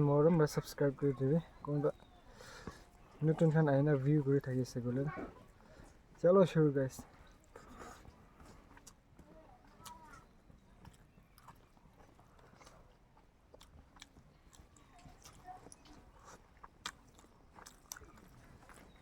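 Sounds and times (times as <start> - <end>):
people chewing food: 0.0 - 19.0
mouth clicks and smacks: 13.5 - 18.9.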